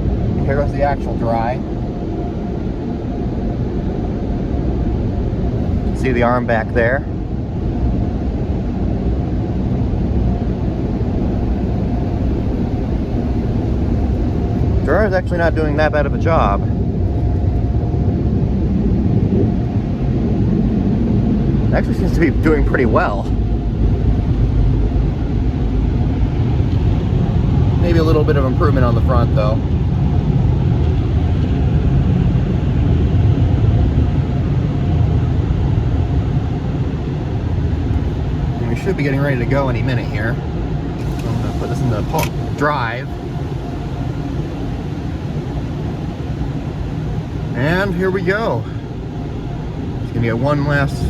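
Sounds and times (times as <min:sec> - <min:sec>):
car wash dryer blowers: 0:00.0 - 0:51.0
car wash air blowers rushing: 0:05.4 - 0:07.1, 0:09.2 - 0:16.8, 0:37.4 - 0:51.0.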